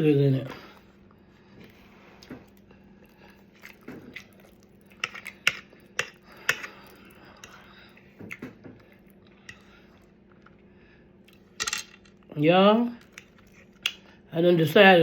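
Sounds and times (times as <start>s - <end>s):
chewing with wet mouth clicks: 1.0s - 11.4s.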